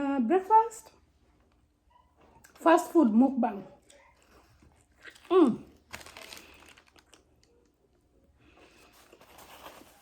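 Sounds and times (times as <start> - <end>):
food wrapper crinkling: 4.2 - 7.8.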